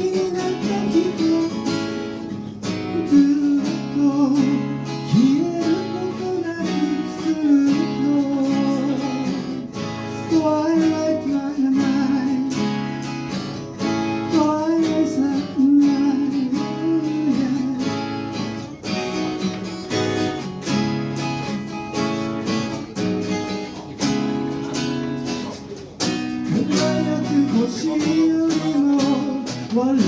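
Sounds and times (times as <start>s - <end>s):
person singing: 0.0s - 13.2s, 13.8s - 20.2s, 26.4s - 30.0s
acoustic guitar strumming: 0.0s - 30.0s.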